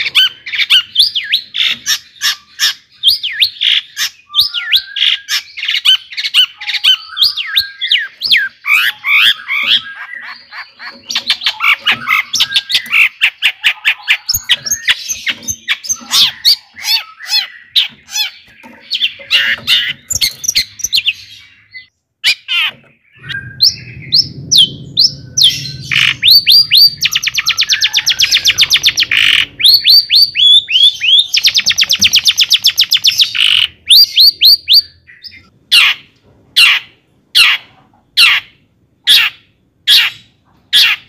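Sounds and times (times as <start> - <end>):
shrike singing: 6.6 - 35.4
low hum: 23.1 - 29.8.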